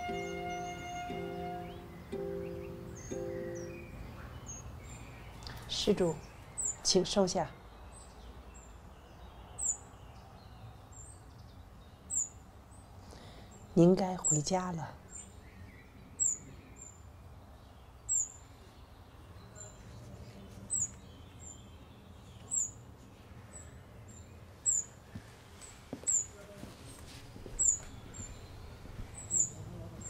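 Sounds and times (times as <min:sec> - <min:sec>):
small bird chirping: 0:00.0 - 0:12.4, 0:23.6 - 0:25.0, 0:27.6 - 0:30.0.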